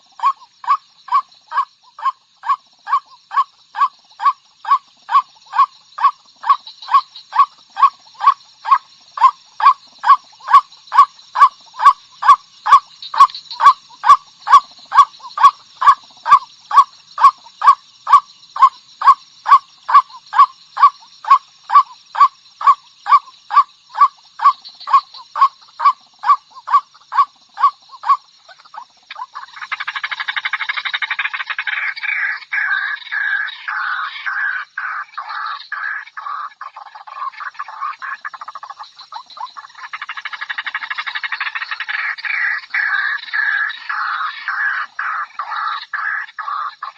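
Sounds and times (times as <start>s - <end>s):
waterhen calling: 0.0s - 46.9s.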